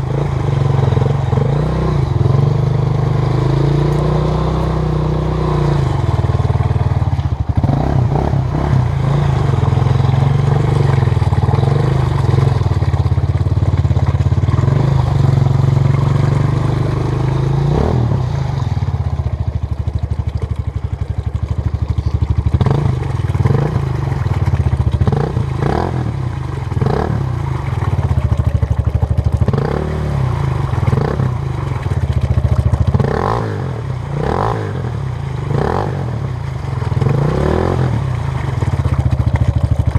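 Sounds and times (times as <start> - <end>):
dirt bike engine revving: 0.0 - 6.9, 7.5 - 13.0, 14.4 - 18.9, 22.5 - 24.3, 25.1 - 27.4, 29.5 - 31.4, 32.9 - 36.2, 37.0 - 38.1.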